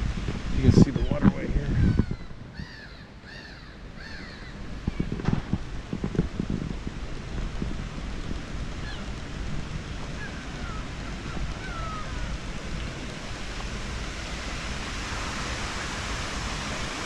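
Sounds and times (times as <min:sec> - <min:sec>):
water: 0:00.0 - 0:17.0
wind: 0:00.0 - 0:17.0
faint high bird calls: 0:01.8 - 0:05.2, 0:10.2 - 0:12.3.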